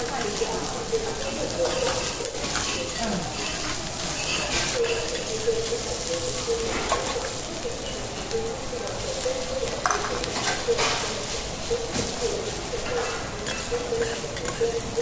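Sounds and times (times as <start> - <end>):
vegetables sizzling on a griddle: 0.0 - 15.0
steel spatulas clicking on a plate: 12.8 - 15.0.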